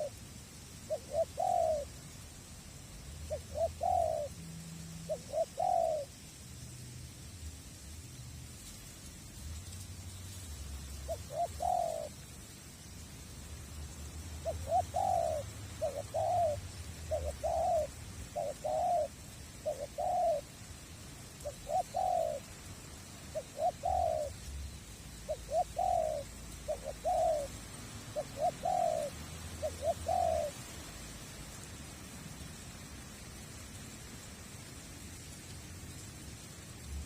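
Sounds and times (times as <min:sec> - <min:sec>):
dove cooing: 0:00.0 - 0:00.2, 0:00.8 - 0:02.1, 0:03.0 - 0:06.2, 0:08.6 - 0:12.3, 0:14.3 - 0:20.6, 0:21.4 - 0:31.7.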